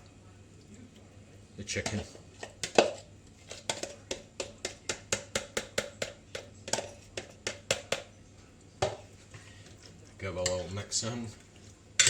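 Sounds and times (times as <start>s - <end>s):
utensil clinking against a bowl: 1.6s - 8.1s, 8.8s - 11.4s.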